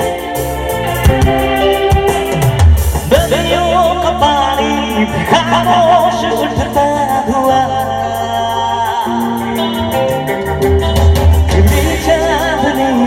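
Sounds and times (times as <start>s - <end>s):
steady drum beat: 0.0s - 13.0s
wavering melody line: 0.0s - 13.0s.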